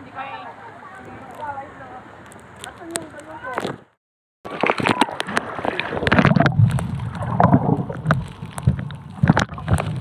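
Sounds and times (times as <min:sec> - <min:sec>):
water splashing: 0:04.5 - 0:10.0
wind rumbling on microphone: 0:04.5 - 0:10.0.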